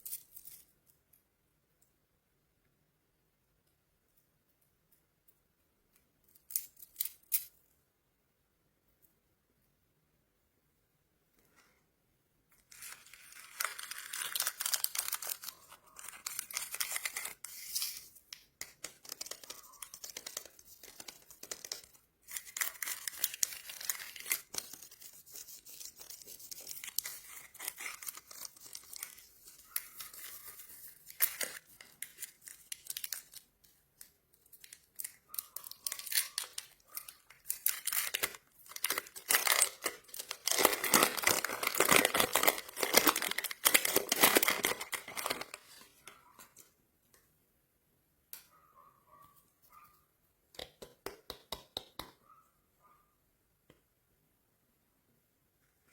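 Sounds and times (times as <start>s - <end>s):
plastic wrappers crinkling: 12.6s - 46.2s.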